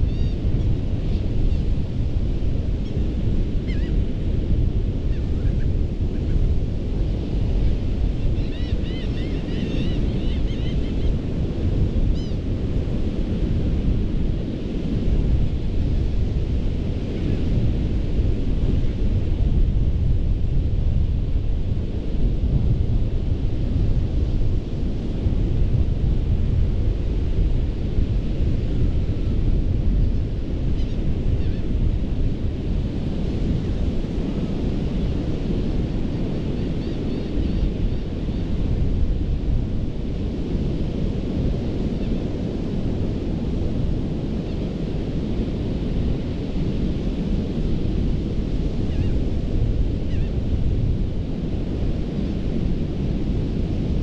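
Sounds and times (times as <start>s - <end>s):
wind on microphone: 0.0s - 54.0s.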